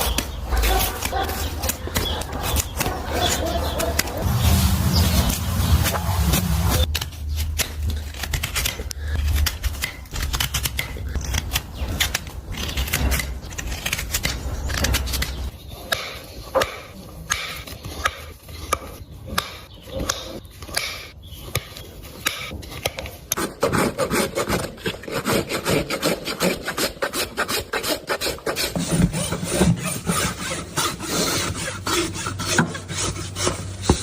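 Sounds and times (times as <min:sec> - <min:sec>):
hoof tools snipping and scraping: 0:00.0 - 0:34.0
low hum: 0:04.0 - 0:07.0.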